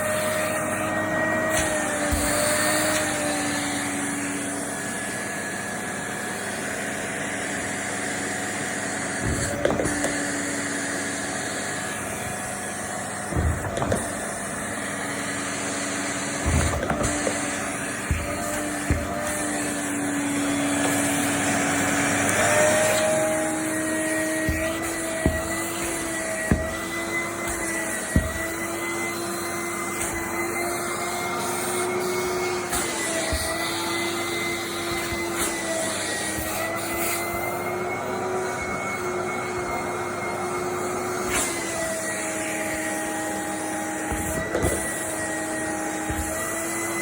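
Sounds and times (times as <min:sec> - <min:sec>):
vacuum cleaner running: 0:00.0 - 0:47.0
sharp knocks: 0:13.3 - 0:14.3, 0:16.4 - 0:21.2, 0:22.8 - 0:30.7.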